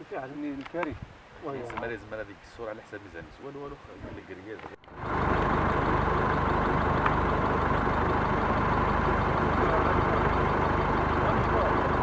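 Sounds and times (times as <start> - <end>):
vehicle engine running: 4.8 - 12.0.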